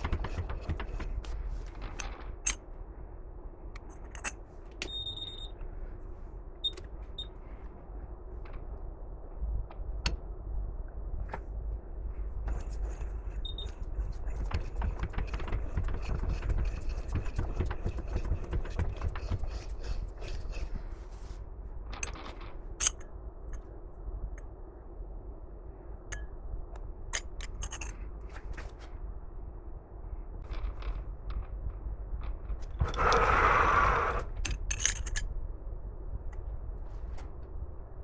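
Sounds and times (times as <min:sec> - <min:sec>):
sharp knocks and taps: 0:14.1 - 0:20.5
scraping with small clicks: 0:26.8 - 0:29.0, 0:30.4 - 0:35.3.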